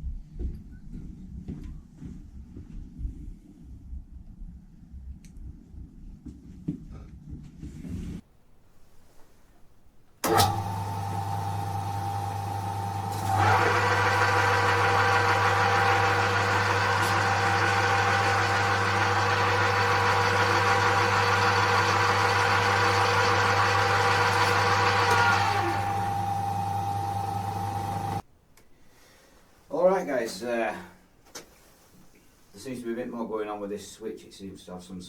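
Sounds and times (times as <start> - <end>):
lathe motor humming: 10.2 - 28.2.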